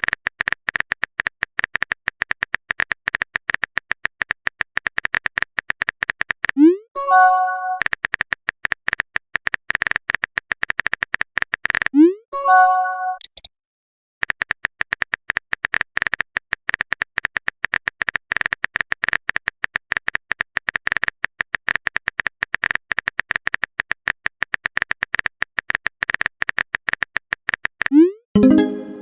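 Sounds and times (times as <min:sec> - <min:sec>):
keyboard typing clicks: 0:13.2 - 0:13.5
short multi-tone message chime: 0:28.4 - 0:29.0.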